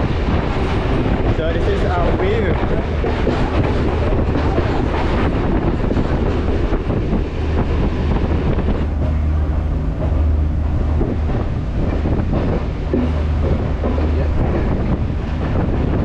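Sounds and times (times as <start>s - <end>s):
train running on rails: 0.0s - 16.0s
wind noise on microphone: 0.0s - 16.0s.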